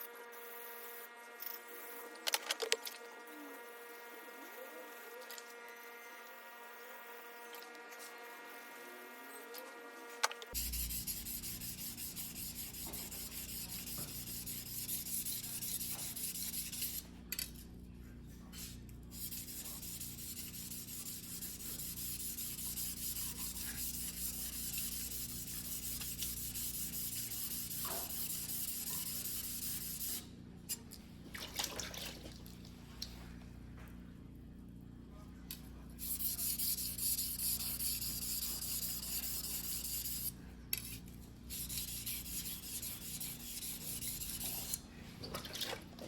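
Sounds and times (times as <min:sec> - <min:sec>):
knife scraping on whetstone: 0:36.0 - 0:44.8.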